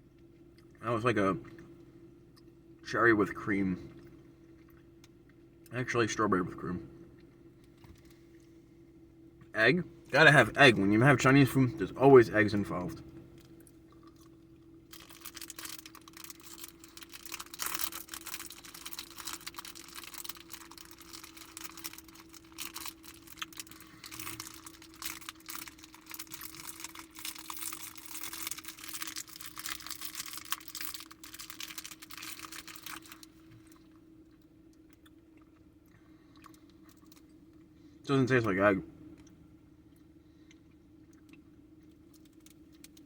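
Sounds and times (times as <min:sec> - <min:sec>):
faint steady hum: 0:00.0 - 0:43.0
chewing gummy candy: 0:10.2 - 0:38.0, 0:39.0 - 0:43.0.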